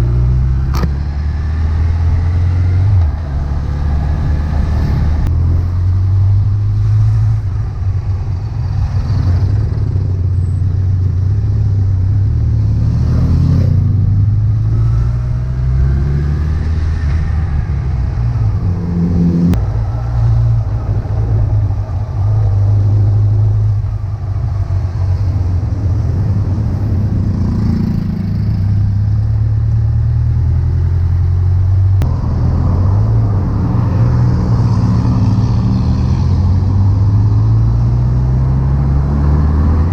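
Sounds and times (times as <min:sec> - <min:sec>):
motorcycle engine revving: 0:08.6 - 0:24.0, 0:25.1 - 0:39.9.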